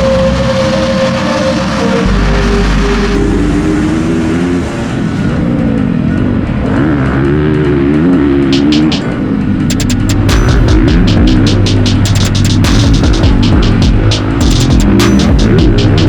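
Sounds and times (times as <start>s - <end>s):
motocross bike engine revving: 0.0s - 16.0s
electronic music with beat clicks: 6.7s - 16.0s.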